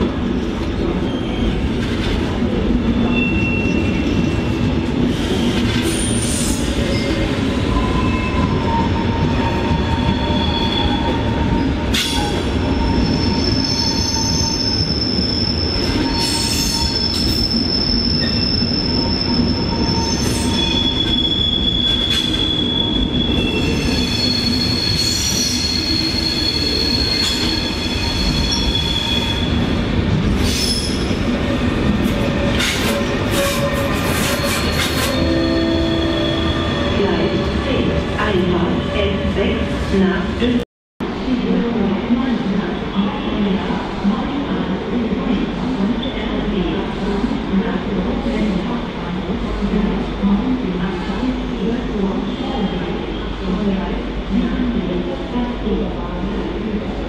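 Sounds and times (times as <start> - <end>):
train wheels squealing: 3.1 - 11.2, 11.9 - 29.7, 30.4 - 31.2.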